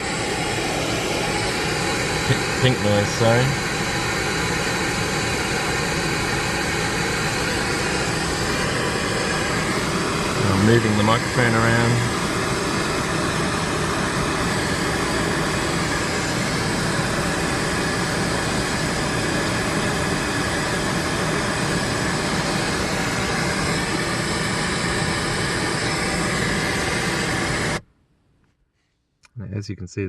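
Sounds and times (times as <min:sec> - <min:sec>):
pink noise hiss from speakers: 0:02.2 - 0:03.6, 0:10.4 - 0:12.1.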